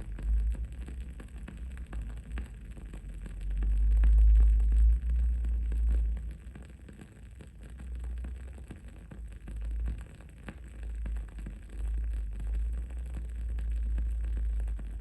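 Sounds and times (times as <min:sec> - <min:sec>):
low rumble background noise: 0:00.0 - 0:15.0.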